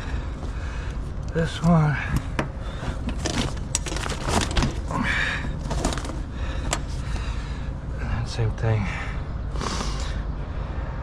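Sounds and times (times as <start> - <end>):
knocks and rustles from handling: 2.2 - 4.9, 5.6 - 7.0.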